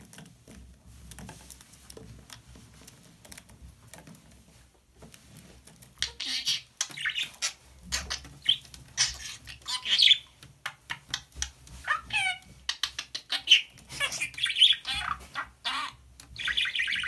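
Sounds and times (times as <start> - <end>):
budgerigar soft clicks: 6.0 - 11.5
budgerigar chattering chirps: 6.0 - 17.0.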